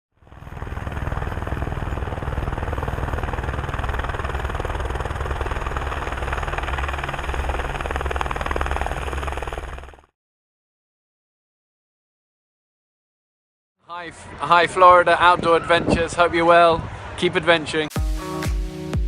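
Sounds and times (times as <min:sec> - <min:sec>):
helicopter engine drone: 0:00.1 - 0:10.1
helicopter rotor chop: 0:00.1 - 0:10.1.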